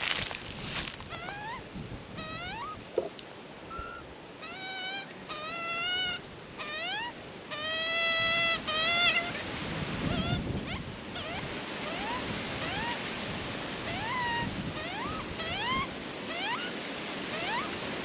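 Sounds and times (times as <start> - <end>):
young magpie begging calls: 1.1 - 1.6, 2.2 - 2.8, 3.7 - 9.5, 10.1 - 13.0, 13.8 - 17.8.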